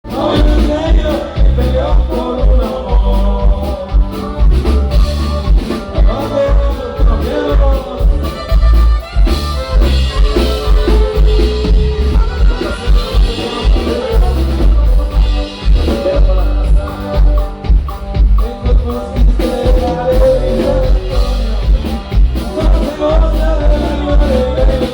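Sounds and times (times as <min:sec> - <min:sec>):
drum kit beat: 0:00.0 - 0:24.9
latin band music: 0:00.0 - 0:24.9
person singing: 0:00.0 - 0:24.9.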